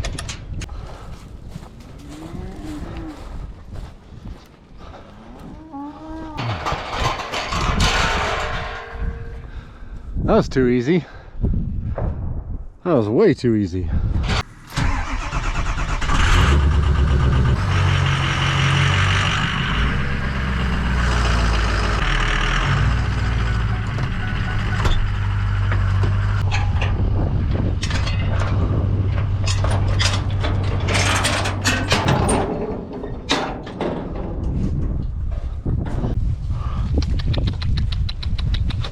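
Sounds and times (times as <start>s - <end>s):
rattling: 6.3s - 9.7s, 14.7s - 36.2s
vehicle engine revving: 14.4s - 26.4s.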